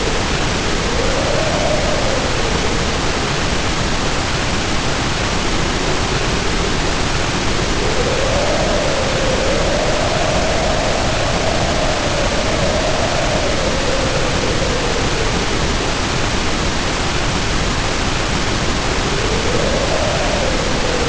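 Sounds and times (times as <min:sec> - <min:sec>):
heavy rain pouring: 0:00.0 - 0:21.0
storm wind howling: 0:00.0 - 0:21.0.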